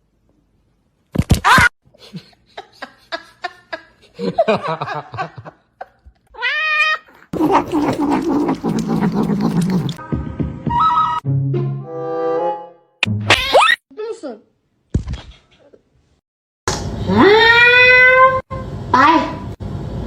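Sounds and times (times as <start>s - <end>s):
cat meowing and yowling: 6.4s - 7.6s, 17.2s - 18.4s.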